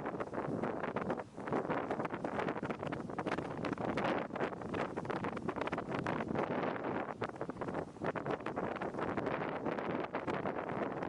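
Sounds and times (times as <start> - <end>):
strong wind on microphone: 0.0 - 11.0.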